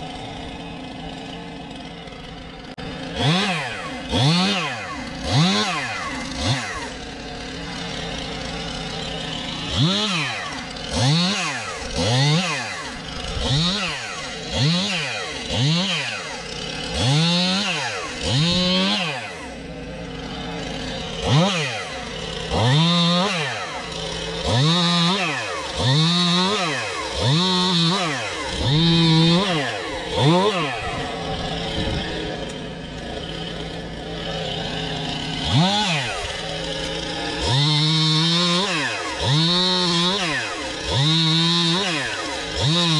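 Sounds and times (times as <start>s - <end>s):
chainsaw revving: 0.0s - 42.9s.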